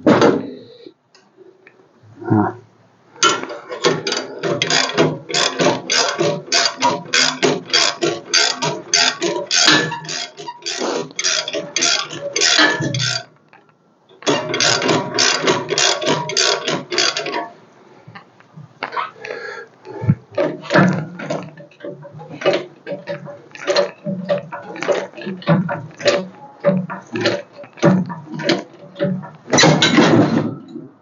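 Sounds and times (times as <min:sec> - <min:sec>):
ratchet clicking: 0:04.1 - 0:13.3.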